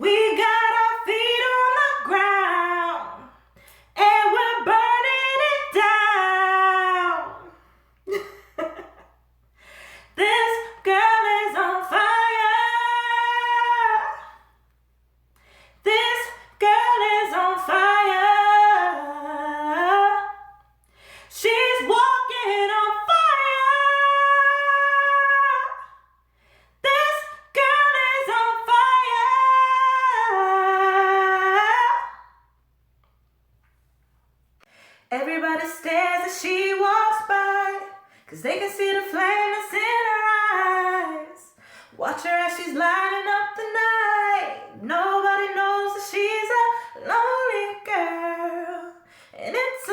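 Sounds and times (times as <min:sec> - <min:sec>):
woman singing unaccompanied: 0:00.0 - 0:03.4, 0:04.0 - 0:07.6, 0:10.2 - 0:14.4, 0:15.8 - 0:20.6, 0:21.3 - 0:26.0, 0:26.8 - 0:32.3, 0:35.1 - 0:49.9.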